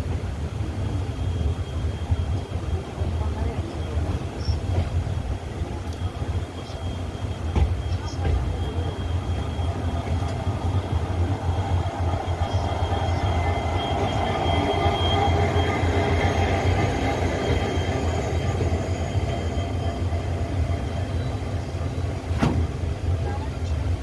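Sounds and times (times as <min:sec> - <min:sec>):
train running gear rumble: 0:00.0 - 0:24.0
faint wheel squeal: 0:06.0 - 0:22.4.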